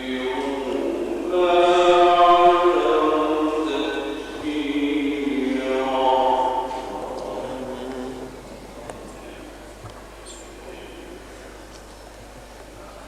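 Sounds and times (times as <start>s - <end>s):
man reciting melodically: 0.0s - 8.4s.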